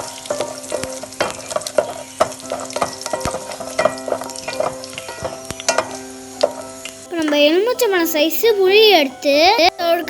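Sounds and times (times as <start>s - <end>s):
leaves being stirred in a pan: 0.0s - 7.0s
seeds popping in hot oil: 0.0s - 7.0s
oil sizzling in a pan: 0.0s - 9.1s.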